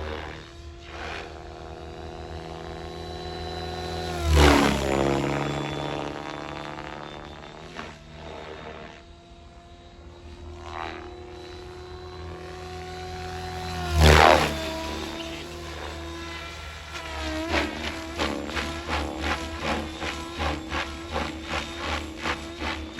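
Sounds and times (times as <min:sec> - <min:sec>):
rc helicopter rotor whine: 0:00.0 - 0:22.9.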